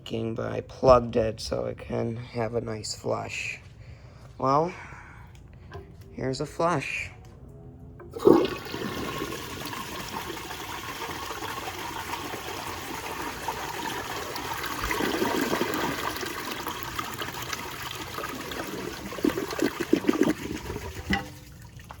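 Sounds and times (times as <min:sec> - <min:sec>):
toilet flushing: 0:08.1 - 0:22.0.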